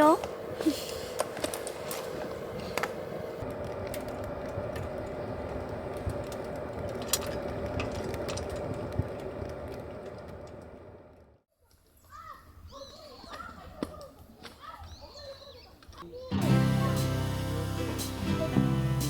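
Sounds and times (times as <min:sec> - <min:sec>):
wood fire crackling in stove: 0:00.0 - 0:11.4.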